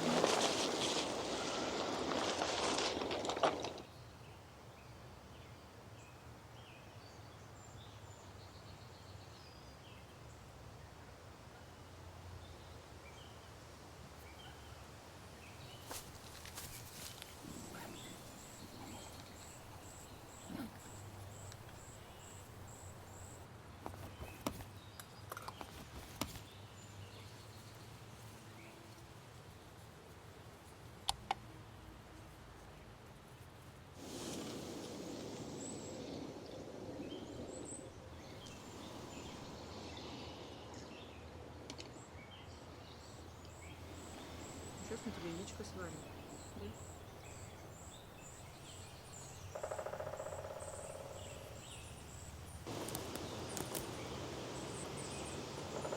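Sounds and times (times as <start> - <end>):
low rushing forest noise: 0.0 - 55.9
faint bird chirps: 16.6 - 23.4, 42.9 - 55.9
small clicks and snaps: 52.7 - 54.0.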